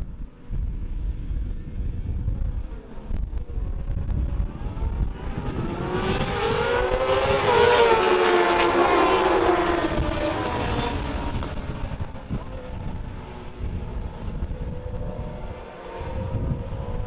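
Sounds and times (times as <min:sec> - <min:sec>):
wind rumble on microphone: 0:00.0 - 0:17.0
racing motorcycles passing: 0:03.8 - 0:17.0.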